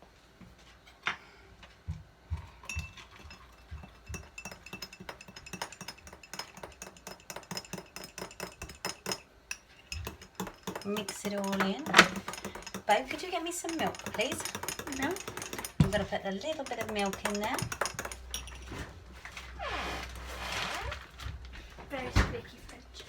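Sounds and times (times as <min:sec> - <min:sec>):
metal utensil clinking against dish: 0:02.6 - 0:18.7.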